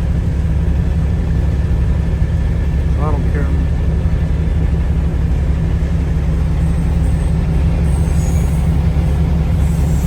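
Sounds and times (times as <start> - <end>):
freight train rumbling past: 0.0 - 10.0
train wheel squeals: 6.4 - 10.0.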